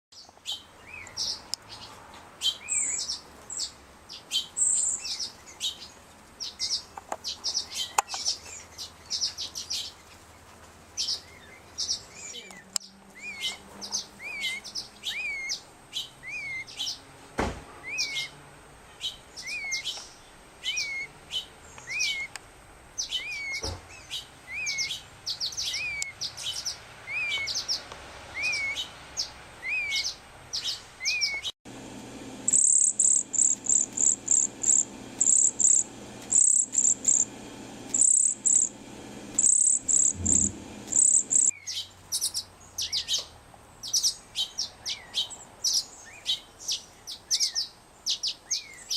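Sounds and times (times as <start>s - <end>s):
fledgling birds begging calls: 11.0s - 17.1s, 17.8s - 22.4s, 23.0s - 31.5s, 32.1s - 48.9s.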